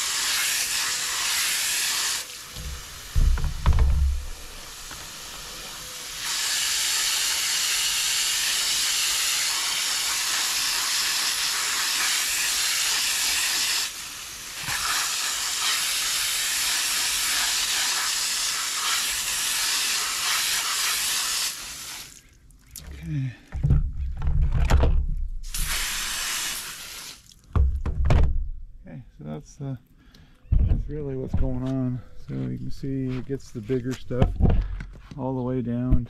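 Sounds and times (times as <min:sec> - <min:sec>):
water spraying hiss: 0:00.0 - 0:22.3, 0:25.4 - 0:27.5.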